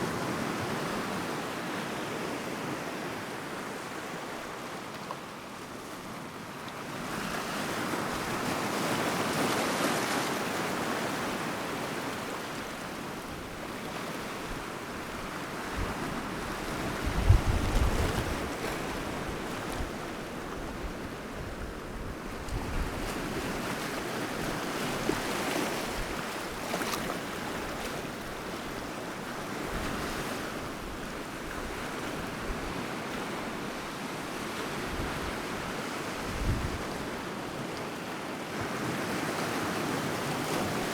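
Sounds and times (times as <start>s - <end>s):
sea waves breaking on shore: 0.0s - 40.9s
wind buffeting microphone: 14.5s - 23.7s, 36.2s - 37.0s.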